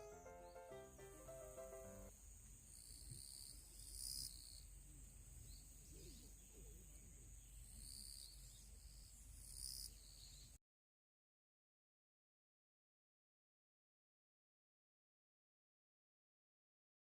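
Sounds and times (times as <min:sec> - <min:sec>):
shrill insect calls: 0:00.0 - 0:10.6.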